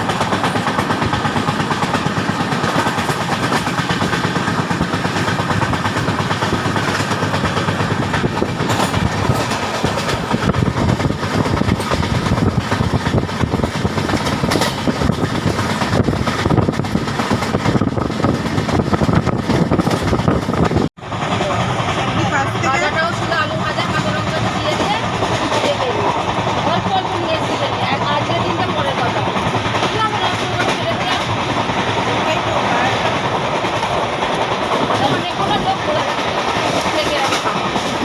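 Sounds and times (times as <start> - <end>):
rattling clicks and knocks: 0.0 - 20.9
train wheels rumbling: 0.0 - 38.0.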